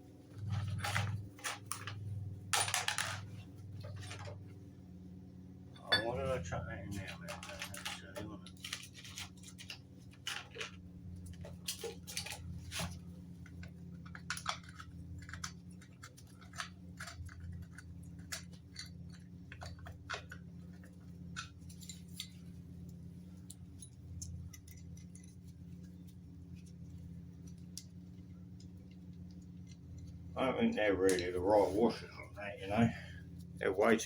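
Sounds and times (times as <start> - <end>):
steady low hum: 0.0 - 34.0
metal fasteners and tools clinking: 0.4 - 4.4, 5.8 - 10.8, 14.1 - 22.4, 23.4 - 26.0.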